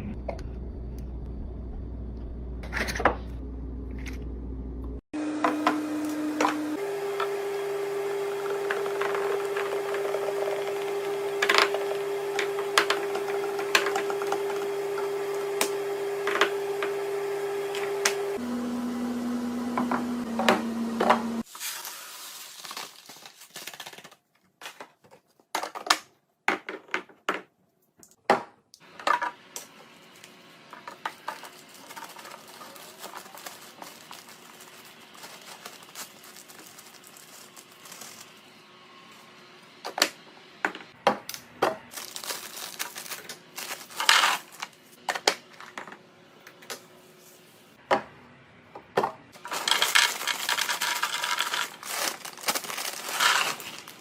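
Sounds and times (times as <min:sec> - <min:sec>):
plastic packaging crinkling: 0:21.4 - 0:24.5, 0:30.1 - 0:38.5, 0:41.9 - 0:44.8, 0:49.4 - 0:54.0
items clicking and clattering: 0:22.7 - 0:29.7, 0:30.7 - 0:38.3, 0:40.7 - 0:46.8, 0:48.9 - 0:54.0.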